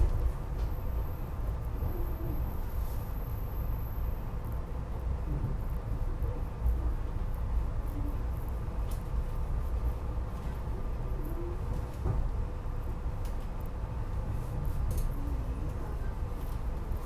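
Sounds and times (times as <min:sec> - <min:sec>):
electric train rumble and hum: 0:00.0 - 0:17.0
faint steady whine: 0:00.0 - 0:17.0.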